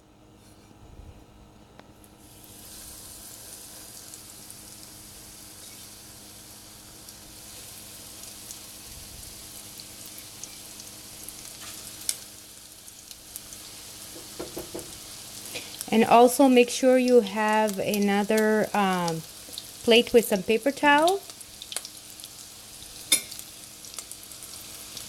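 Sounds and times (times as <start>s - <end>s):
chicken sizzling in hot oil: 2.2s - 25.0s
oil crackles: 21.0s - 22.2s.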